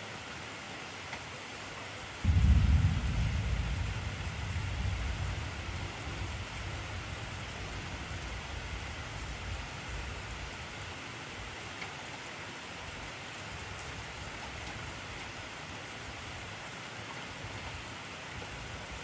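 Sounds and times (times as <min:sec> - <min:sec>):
thunder rumble: 0:02.2 - 0:11.0
heavy rain hissing: 0:02.2 - 0:19.0.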